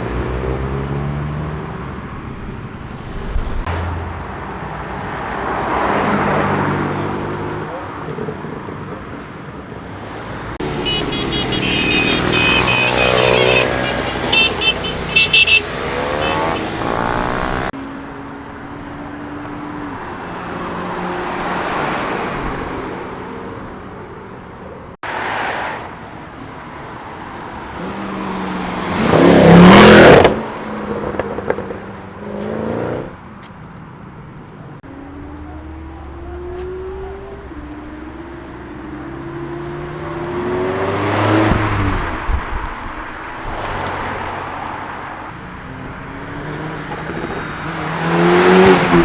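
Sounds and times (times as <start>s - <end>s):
cars accelerating past: 10.0s - 17.8s, 19.5s - 23.4s, 27.2s - 33.2s, 34.8s - 49.0s.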